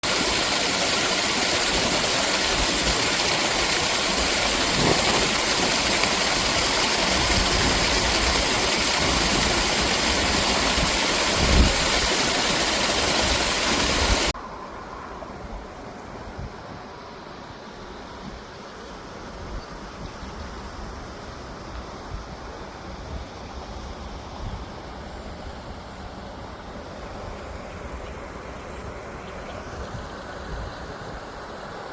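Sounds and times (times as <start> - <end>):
water pouring and splashing: 0.0 - 14.4
wind bumps on microphone: 4.6 - 5.9, 7.1 - 12.1.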